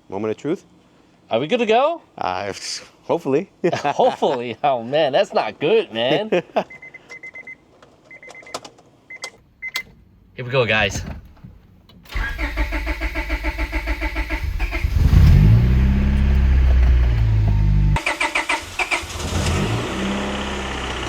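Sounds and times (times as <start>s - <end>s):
engine starter cranking: 12.1s - 20.2s
car engine running: 12.2s - 21.0s.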